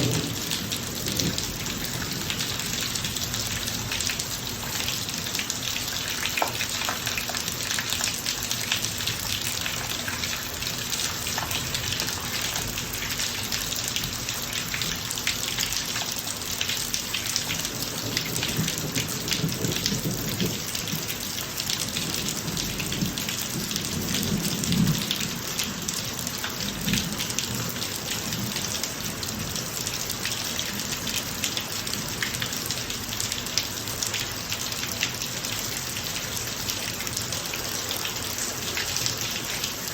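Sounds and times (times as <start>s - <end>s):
low roll of thunder: 0.0s - 3.2s, 18.1s - 21.1s, 22.1s - 25.3s
rain pattering on driveway: 0.0s - 39.9s.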